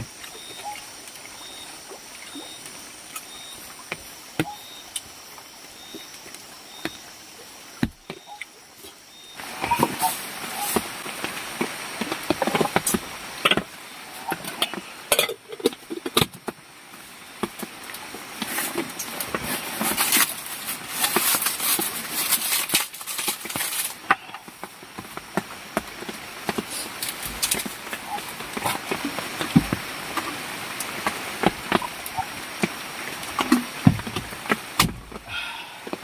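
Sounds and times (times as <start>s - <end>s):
objects being handled: 18.4s - 36.0s.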